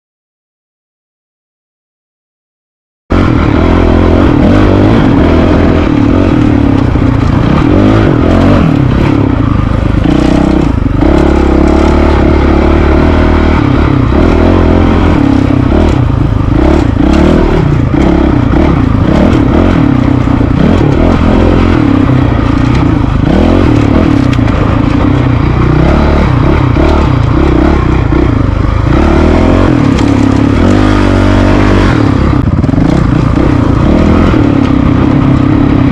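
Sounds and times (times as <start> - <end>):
dirt bike engine revving: 3.1 - 35.9.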